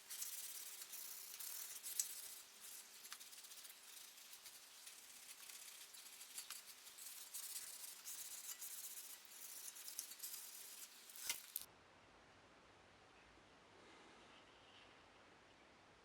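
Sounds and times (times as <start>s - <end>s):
dry rubbing and scraping: 0.0s - 11.7s
small clicks: 0.0s - 11.7s.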